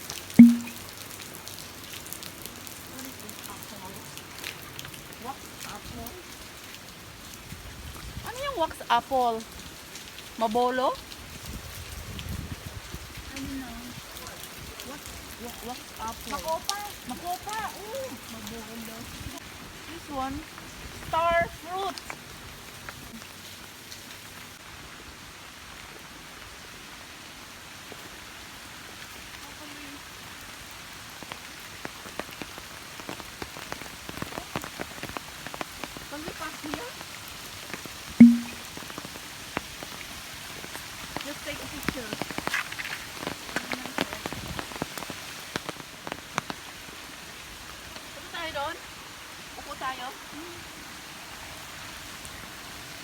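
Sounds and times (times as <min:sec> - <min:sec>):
steady rain falling: 0:00.0 - 0:53.0
faint drop-like clicks: 0:00.4 - 0:00.8, 0:38.2 - 0:38.6
raindrops tapping sharply: 0:00.4 - 0:01.2, 0:31.8 - 0:40.0, 0:40.7 - 0:46.7.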